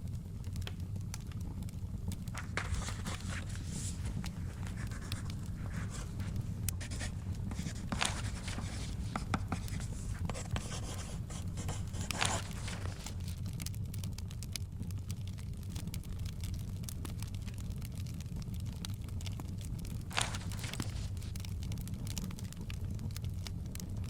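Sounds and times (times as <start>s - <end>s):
wood fire crackling and popping: 0.0s - 24.0s
book pages rustling: 2.3s - 13.4s, 20.1s - 21.5s.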